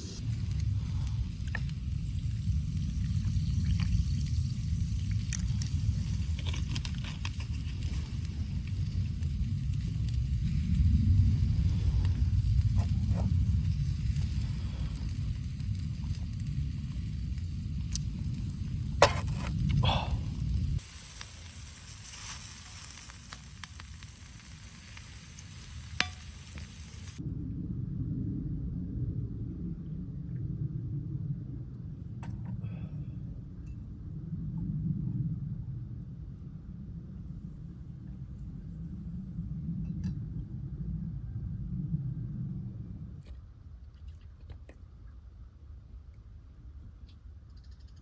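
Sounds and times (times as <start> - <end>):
campfire crackling and popping: 0.0 - 27.2
steady low rumble: 0.0 - 48.0
food sizzling in a frying pan: 20.4 - 27.2.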